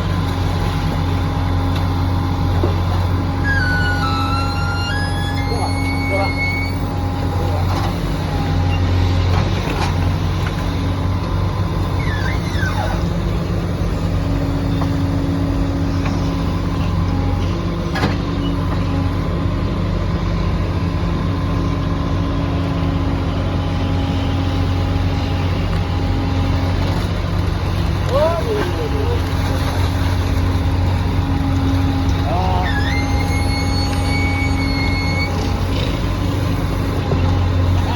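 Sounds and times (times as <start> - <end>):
excavator diesel engine running: 0.0 - 37.9
falling squeaks: 3.4 - 6.9, 12.0 - 13.1, 32.3 - 35.5.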